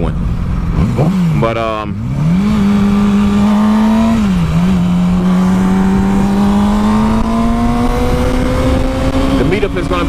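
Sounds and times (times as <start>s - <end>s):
motorcycle engine running: 0.0s - 10.0s
wind noise on microphone: 2.3s - 10.0s.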